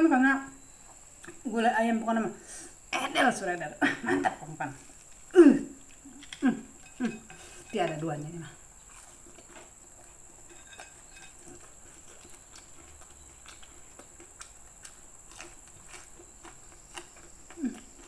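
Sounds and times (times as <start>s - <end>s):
chewing crisp food: 8.6s - 18.0s.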